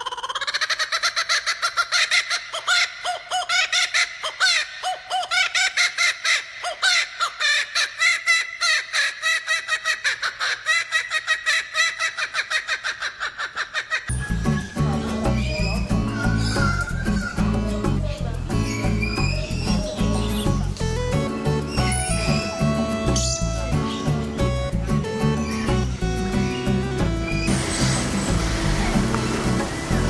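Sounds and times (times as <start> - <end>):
bird calling in harsh notes: 14.1 - 29.3.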